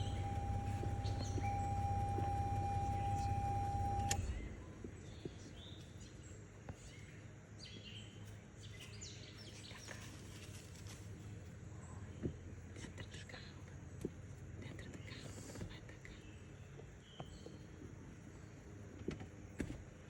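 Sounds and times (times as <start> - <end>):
small birds chirping: 0.0 - 4.2
steady hum with held tone: 0.0 - 4.7.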